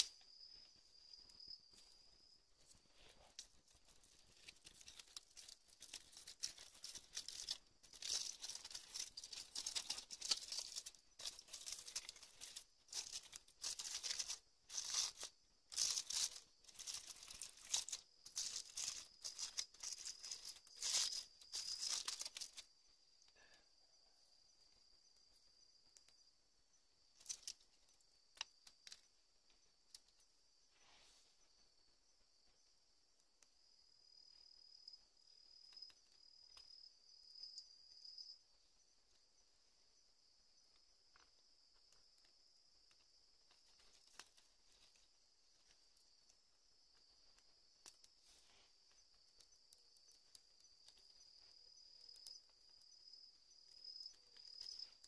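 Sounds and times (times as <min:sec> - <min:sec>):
high-pitched insect trill: 0:00.0 - 0:02.8, 0:03.4 - 0:30.4, 0:33.6 - 0:55.0
rustling and crinkling: 0:00.0 - 0:22.8, 0:27.1 - 0:32.5, 0:40.7 - 0:55.0.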